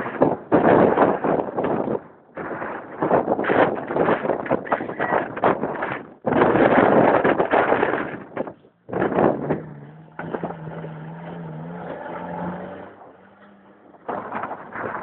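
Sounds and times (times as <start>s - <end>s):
car engine droning: 8.5s - 15.0s.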